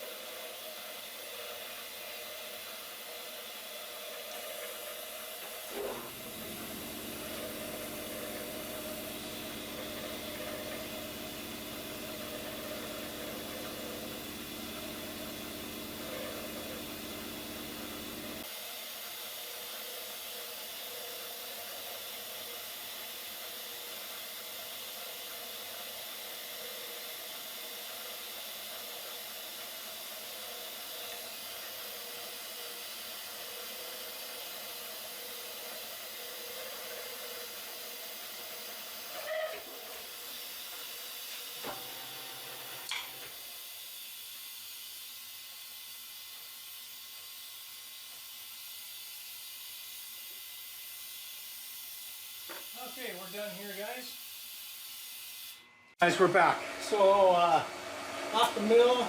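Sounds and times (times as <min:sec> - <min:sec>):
compressed air hissing: 0:05.6 - 0:18.5.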